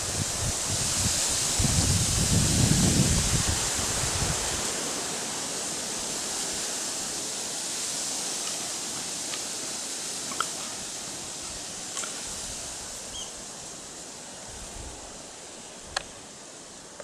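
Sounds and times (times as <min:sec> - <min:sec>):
wind gust on microphone: 0:00.0 - 0:07.0, 0:14.4 - 0:15.2
hissing outdoor ambience: 0:00.0 - 0:17.0.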